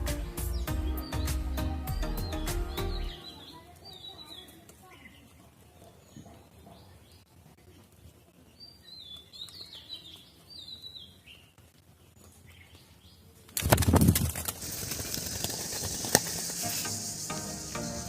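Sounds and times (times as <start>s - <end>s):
small bird chirping: 0.5s - 18.0s
loud rustling burst: 13.6s - 18.0s.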